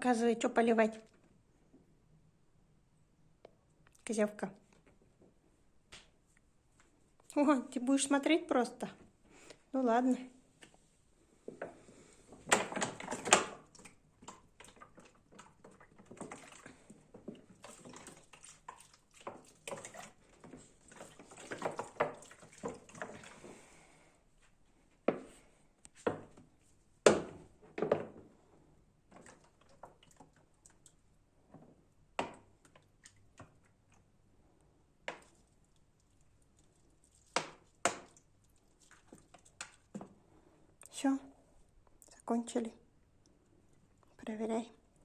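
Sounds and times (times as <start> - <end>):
water pouring and rustling: 11.4 - 24.0, 29.1 - 31.6, 35.0 - 40.2.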